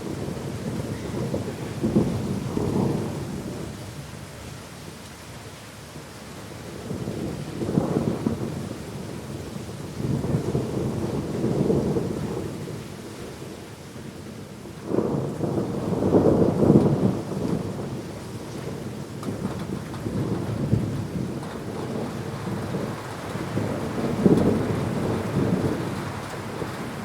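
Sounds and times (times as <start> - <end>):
thunder rumbling: 0.0 - 3.8, 6.7 - 12.9, 14.6 - 27.0
rain hissing: 14.9 - 27.0.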